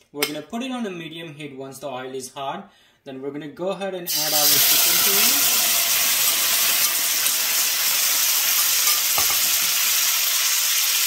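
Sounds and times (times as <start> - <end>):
chicken sizzling in hot oil: 4.1 - 11.0.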